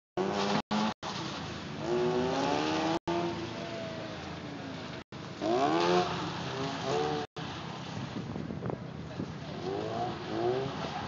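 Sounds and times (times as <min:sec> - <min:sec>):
rotary engine revving: 0:00.2 - 0:03.6, 0:05.4 - 0:07.8, 0:09.5 - 0:11.0.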